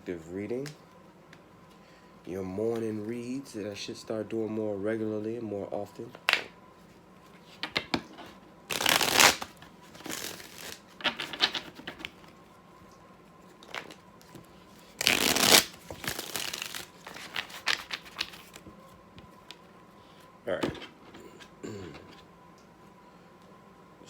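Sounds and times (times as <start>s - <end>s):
cards being shuffled: 8.7s - 12.4s, 13.6s - 18.7s.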